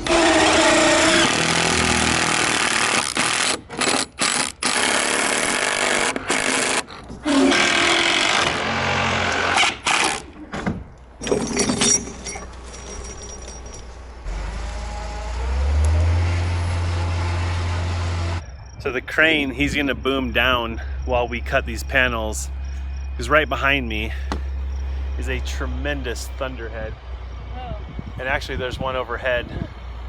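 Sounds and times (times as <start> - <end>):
power driver driving screws: 0.0 - 10.4
low engine rumble: 10.3 - 30.0.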